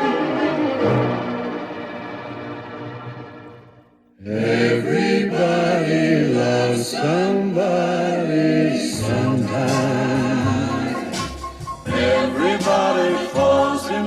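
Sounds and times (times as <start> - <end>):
orchestral pop accompaniment: 0.0 - 3.8, 8.8 - 14.0
backing choir singing harmonies: 0.0 - 14.0.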